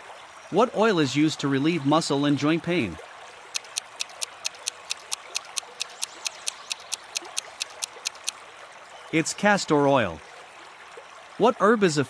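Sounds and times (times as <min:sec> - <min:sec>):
clock ticking quickly: 0:03.6 - 0:08.3.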